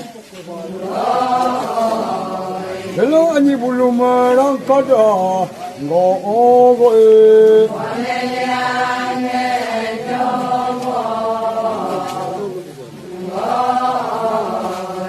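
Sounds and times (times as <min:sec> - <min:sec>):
group of voices chanting: 0:00.6 - 0:03.4, 0:07.6 - 0:15.0.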